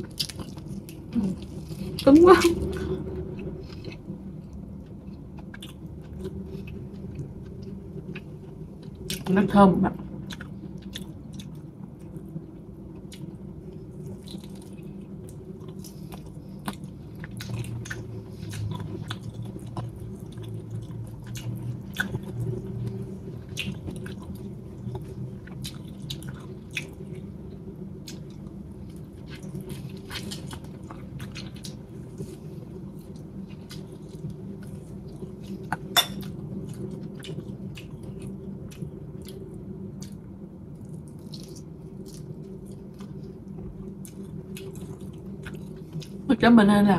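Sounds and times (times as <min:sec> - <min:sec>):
steady low hum: 0:00.0 - 0:46.9
chewing: 0:28.0 - 0:40.2, 0:40.8 - 0:46.2.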